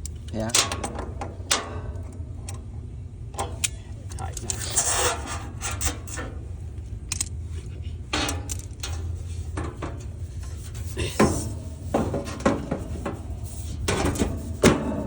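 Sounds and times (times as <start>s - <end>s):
steady low hum: 0.0s - 15.0s
metal tools clinking and scraping: 3.4s - 6.5s, 7.1s - 15.0s.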